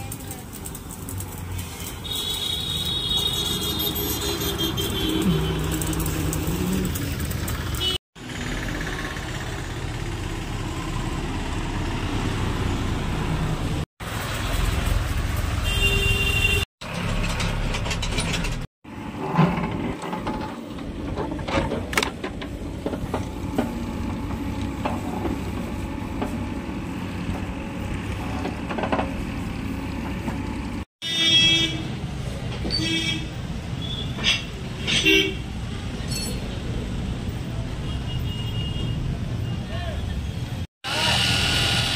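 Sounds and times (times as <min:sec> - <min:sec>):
tractor engines rumbling: 0:00.0 - 0:37.9
vehicle horns honking: 0:02.0 - 0:06.0, 0:07.7 - 0:08.0, 0:15.6 - 0:16.7, 0:31.0 - 0:31.9, 0:32.7 - 0:35.5, 0:37.8 - 0:40.0.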